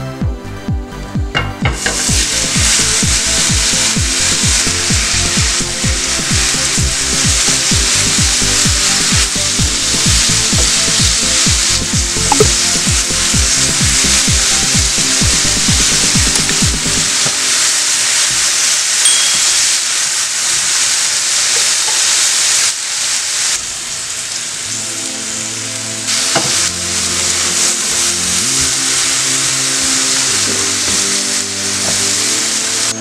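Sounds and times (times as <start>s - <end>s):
background music: 0.0s - 17.4s, 24.7s - 33.0s
food sizzling in a pan: 1.4s - 33.0s.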